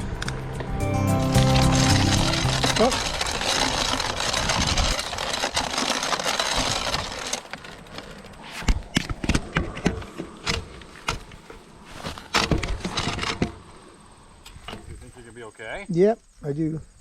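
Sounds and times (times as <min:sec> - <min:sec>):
rushing riding noise: 0:01.0 - 0:08.8
bicycle clicks and knocks: 0:01.4 - 0:11.6.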